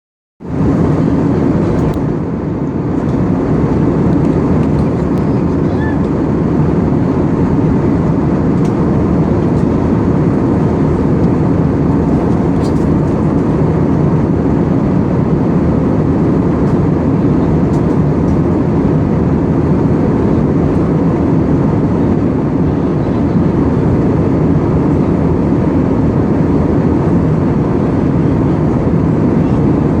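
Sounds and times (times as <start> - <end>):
airplane cabin drone: 0.4 - 30.0.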